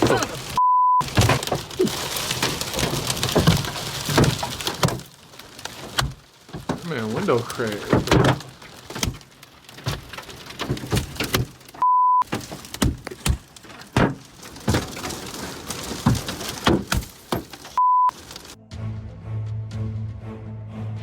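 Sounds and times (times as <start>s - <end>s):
hailstones pelting a car: 0.0s - 18.6s
censor bleeps: 0.6s - 1.0s, 11.8s - 12.2s, 17.8s - 18.1s.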